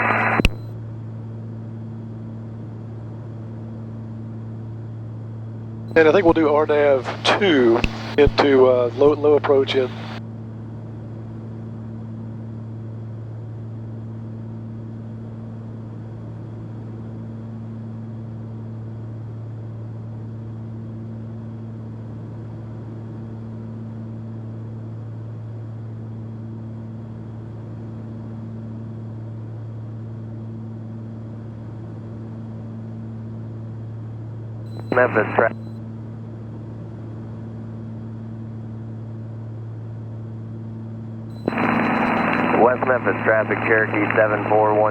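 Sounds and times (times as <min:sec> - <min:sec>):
propeller plane engines droning: 0:04.9 - 0:10.2, 0:34.8 - 0:35.5, 0:41.4 - 0:44.9.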